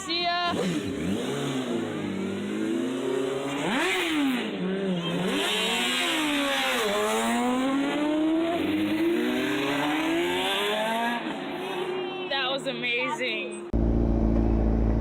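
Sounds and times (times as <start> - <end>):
motorcycle engine revving: 0.4 - 12.3.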